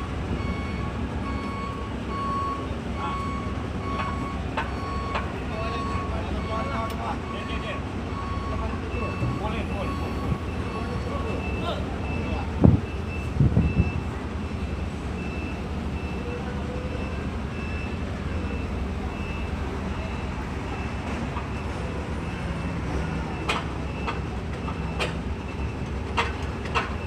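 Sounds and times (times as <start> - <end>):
heavy vehicle engine idling: 0.0 - 27.0
high warning beep: 0.4 - 21.0.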